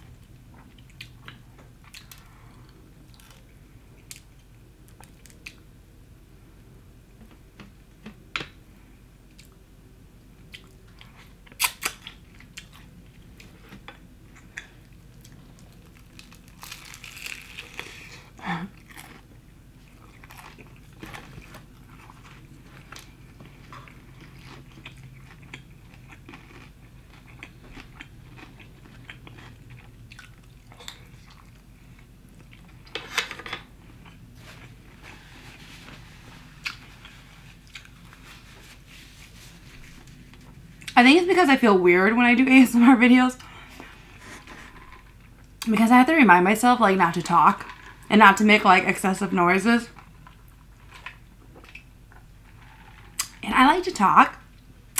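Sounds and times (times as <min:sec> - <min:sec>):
chewing crunchy fried chicken: 0:00.1 - 0:05.7, 0:10.4 - 0:32.9, 0:36.6 - 0:38.2.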